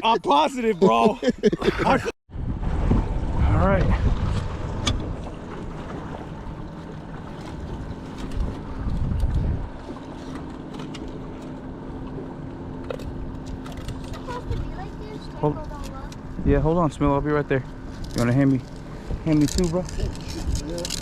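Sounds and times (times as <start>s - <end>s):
wind buffeting microphone: 2.3s - 6.8s, 7.6s - 9.9s.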